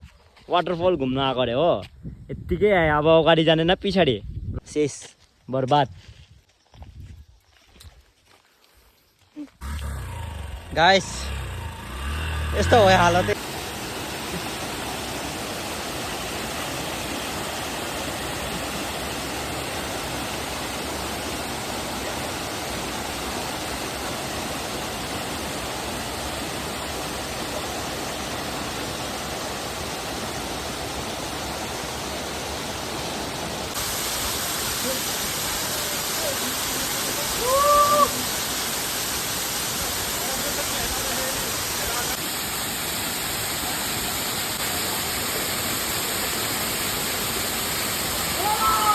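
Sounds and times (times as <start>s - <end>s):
voice-like call: 9.6s - 13.4s, 37.3s - 38.3s
waterfall rushing: 9.6s - 48.9s.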